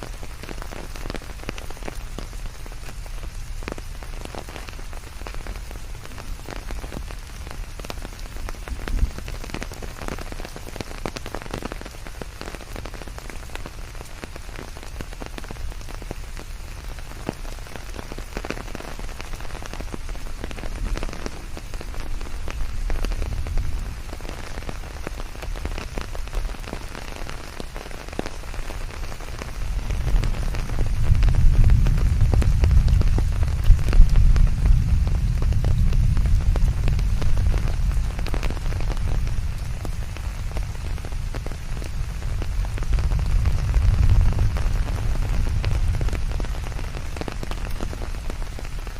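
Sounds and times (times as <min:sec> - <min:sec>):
rain drops ticking: 0:00.0 - 0:48.9
deep low rumble: 0:29.6 - 0:47.1.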